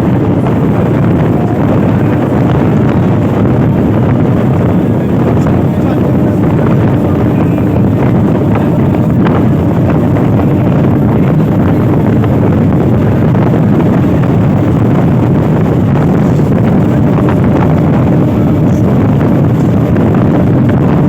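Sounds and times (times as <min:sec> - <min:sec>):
train rumbling at speed: 0:00.0 - 0:21.0
wind buffeting microphone: 0:00.0 - 0:21.0.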